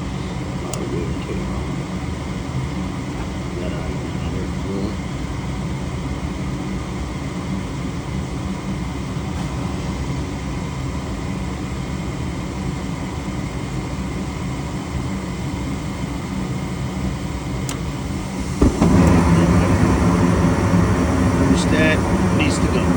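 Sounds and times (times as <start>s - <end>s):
furnace humming: 7.3s - 22.9s
click: 17.6s - 17.9s.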